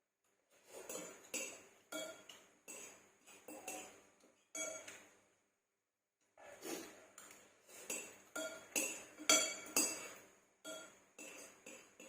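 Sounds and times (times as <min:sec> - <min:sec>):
metal cutlery clinking against dish: 0:00.6 - 0:05.1, 0:07.2 - 0:12.0.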